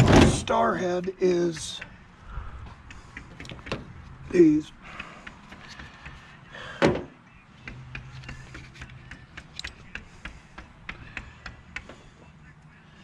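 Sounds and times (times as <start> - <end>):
loud metal clunk: 0.0 - 0.5
tool clicks and taps on metal: 7.6 - 12.0.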